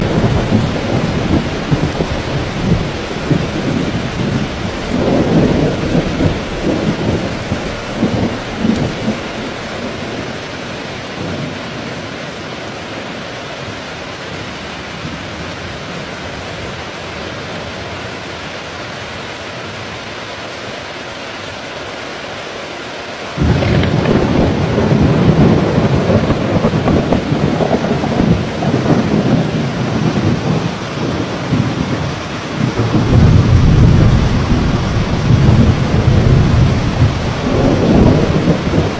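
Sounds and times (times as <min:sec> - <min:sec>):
loud thunder crack: 0:00.0 - 0:11.5, 0:23.4 - 0:38.9
thunder rumbling: 0:00.0 - 0:12.1, 0:23.4 - 0:38.9
steady rain falling: 0:00.0 - 0:38.9.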